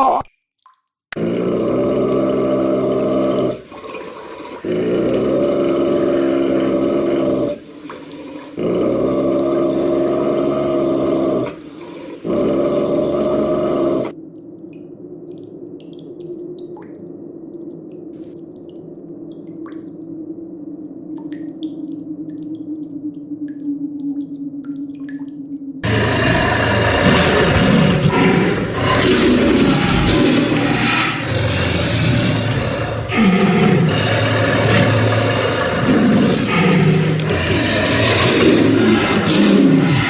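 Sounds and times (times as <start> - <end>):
dripping water: 0.0 - 40.0
long low growls: 1.2 - 3.7, 4.6 - 7.6, 8.6 - 11.6, 25.8 - 40.0.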